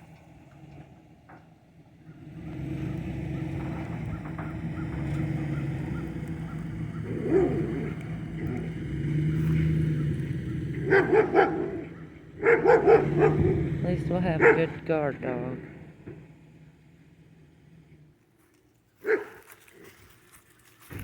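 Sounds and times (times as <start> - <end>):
vehicle engine running: 0.0 - 21.0
dog barking: 7.0 - 8.0, 10.8 - 13.7, 14.4 - 14.8, 19.0 - 19.9.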